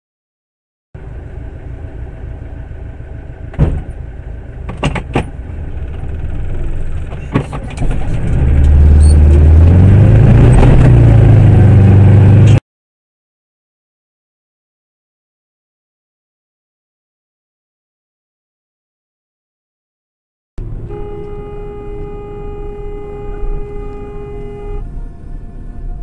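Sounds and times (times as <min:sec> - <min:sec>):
car engine and road noise: 0:01.0 - 0:12.6, 0:20.6 - 0:26.0.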